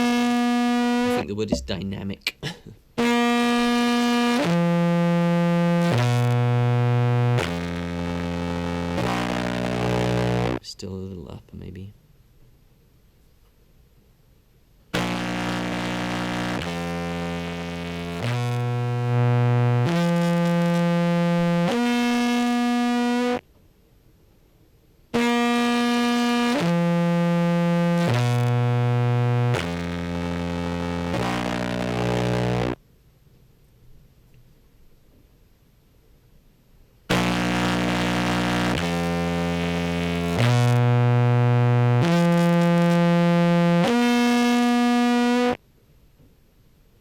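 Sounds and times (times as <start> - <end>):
buzzy distorted contrabass clarinet: 0.0 - 2.1, 3.0 - 10.6, 15.0 - 23.4, 25.2 - 32.8, 37.1 - 45.6.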